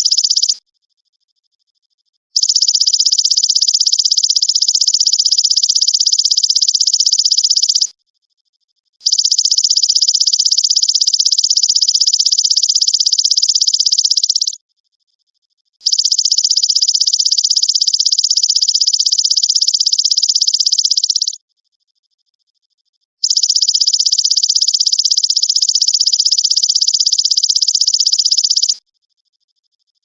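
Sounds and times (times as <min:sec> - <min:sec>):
grasshopper buzzy trill: 0:23.2 - 0:28.8.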